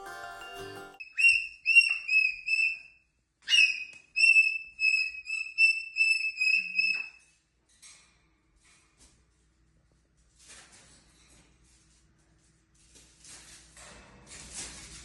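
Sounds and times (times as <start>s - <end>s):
cockatoo whistling: 1.0s - 2.8s
cockatoo squawk: 3.5s - 7.1s.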